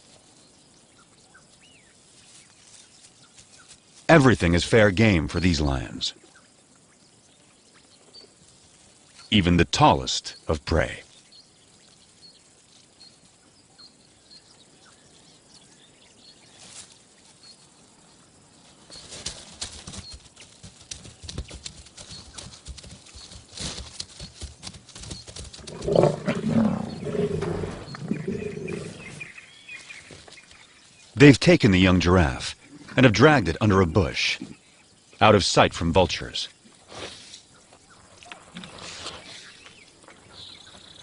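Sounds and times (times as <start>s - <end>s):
lions growling: 25.6s - 29.4s.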